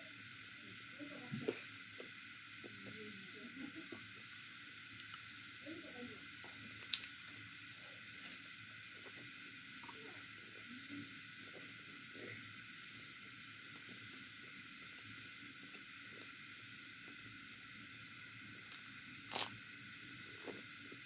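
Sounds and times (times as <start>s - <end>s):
insects chirping: 0.0s - 21.0s
faint chewing: 6.4s - 7.4s, 18.7s - 21.0s.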